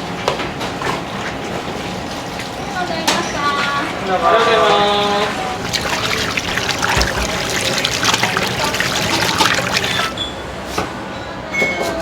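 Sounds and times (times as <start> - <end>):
water running from a tap: 1.2 - 10.2.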